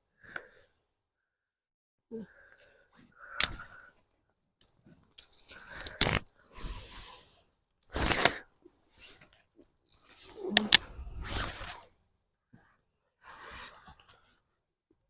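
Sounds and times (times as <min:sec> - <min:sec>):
sticks snapping: 0:10.5 - 0:10.8.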